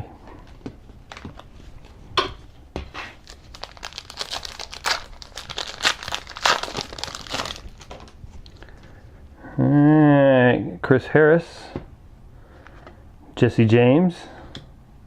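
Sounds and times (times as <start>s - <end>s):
foil wrapper tearing and crinkling: 3.2s - 8.2s.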